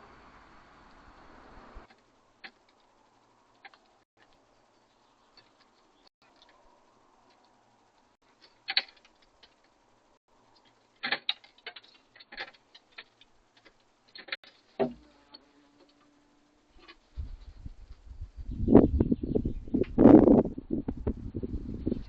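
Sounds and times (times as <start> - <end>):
birds pecking at feeder: 1.9 - 14.8.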